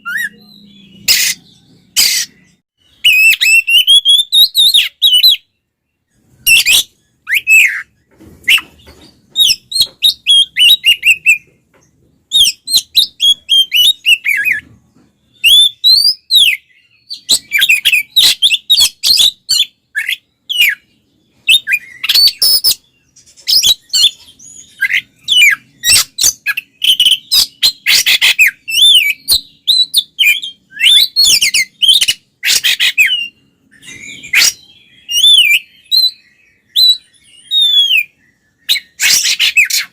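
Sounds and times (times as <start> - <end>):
bird singing whistles and chirps: 0.0 - 11.6, 12.2 - 39.9.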